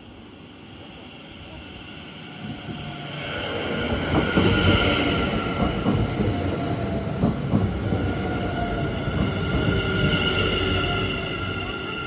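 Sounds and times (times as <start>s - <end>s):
electric trains passing: 0.0s - 12.0s.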